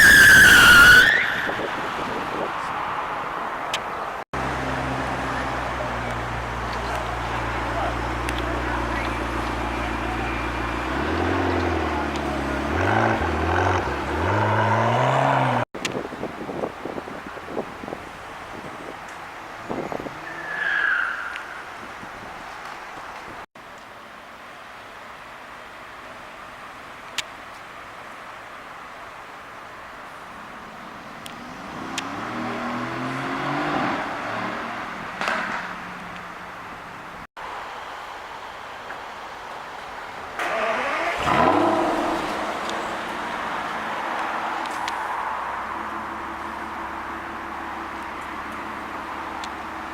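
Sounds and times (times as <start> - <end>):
car engine revving: 4.4 - 15.7, 31.2 - 36.2, 40.4 - 49.9
car accelerating past: 31.4 - 36.0, 40.4 - 45.6.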